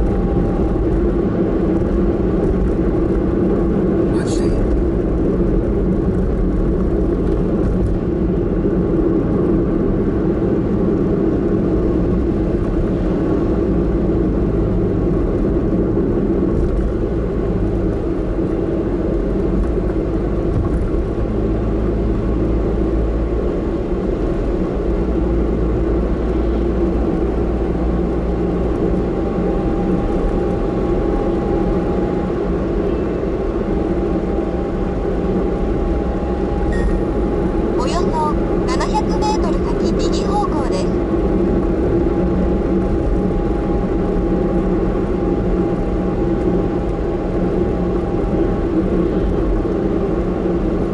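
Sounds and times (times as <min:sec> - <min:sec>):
car engine and road rumble: 0:00.0 - 0:50.9
faint whine: 0:36.4 - 0:41.0.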